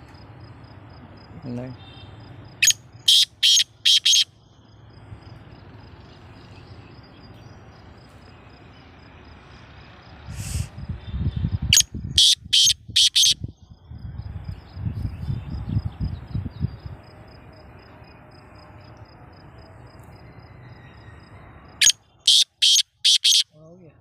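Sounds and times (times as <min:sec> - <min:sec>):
francolin harsh calls: 0:02.6 - 0:04.3, 0:11.7 - 0:13.4, 0:21.8 - 0:23.5.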